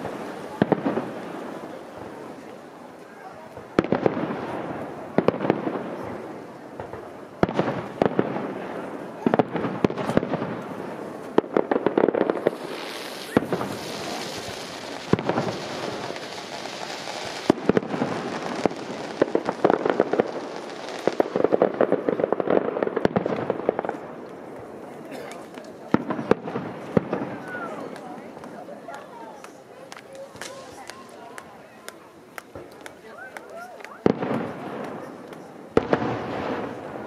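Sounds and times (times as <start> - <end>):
firework hiss: 3.5 - 24.8.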